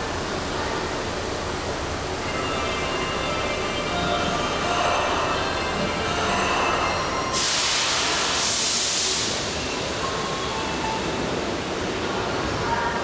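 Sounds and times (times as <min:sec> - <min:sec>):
electric train humming: 0:00.0 - 0:08.6
compressed air hissing: 0:07.3 - 0:09.4.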